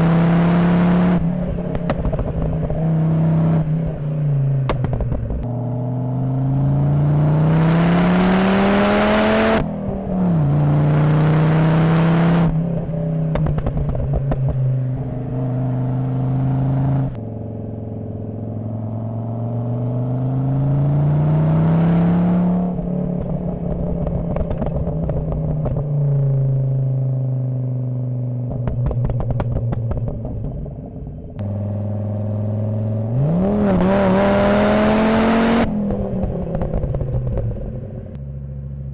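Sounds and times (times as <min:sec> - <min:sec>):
car engine accelerating: 0:00.0 - 0:38.9
exhaust crackling and popping: 0:01.0 - 0:05.6, 0:09.4 - 0:10.9, 0:12.3 - 0:17.2, 0:22.5 - 0:38.6.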